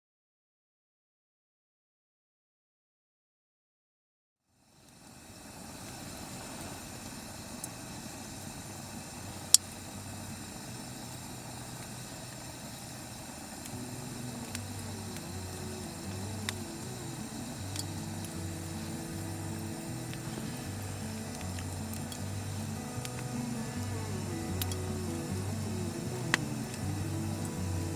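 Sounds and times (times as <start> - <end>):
steady rushing noise: 5.1 - 27.9
soft music with low note: 13.7 - 27.9
sharp clicks: 20.1 - 27.6.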